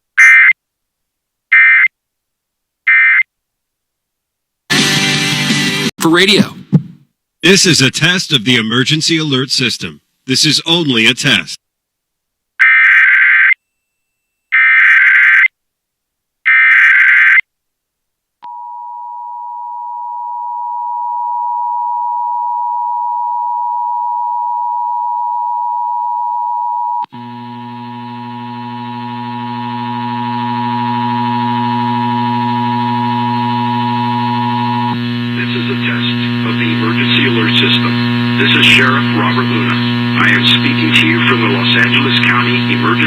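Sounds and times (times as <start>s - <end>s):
harsh buzzy tone: 27.0s - 43.0s
low hum: 27.1s - 43.0s.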